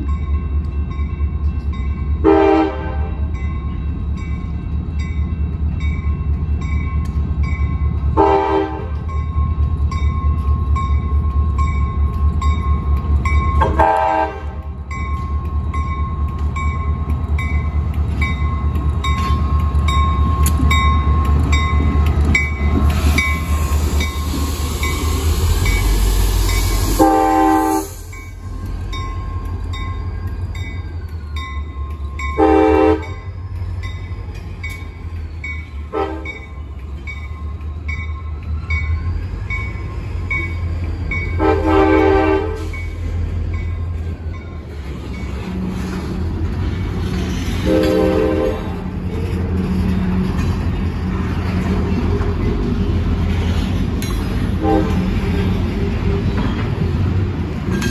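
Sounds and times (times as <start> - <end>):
train rumbling past: 0.0 - 57.9
locomotive horn blasts: 2.2 - 3.2, 8.2 - 9.0, 13.6 - 14.7, 26.9 - 28.0, 32.4 - 33.2, 35.9 - 36.4, 41.4 - 42.7, 47.6 - 48.8, 54.6 - 55.1.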